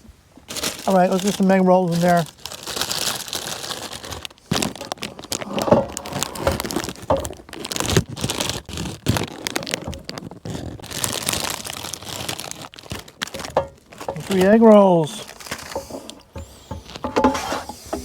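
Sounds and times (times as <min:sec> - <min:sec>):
food packaging crinkling: 0:00.3 - 0:18.0
small knocks: 0:13.2 - 0:14.6, 0:15.2 - 0:18.0.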